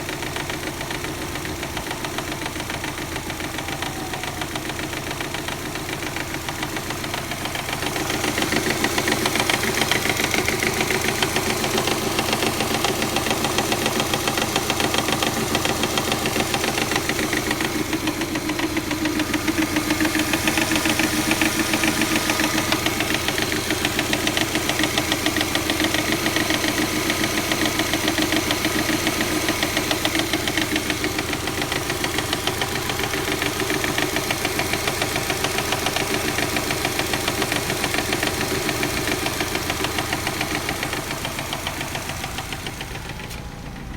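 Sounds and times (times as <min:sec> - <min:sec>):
car engine idling: 0:00.0 - 0:43.9.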